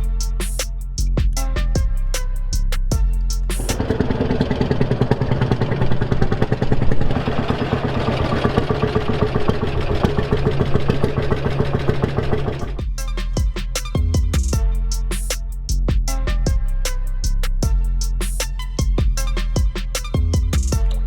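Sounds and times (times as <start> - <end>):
tractor engine running: 3.6 - 12.8.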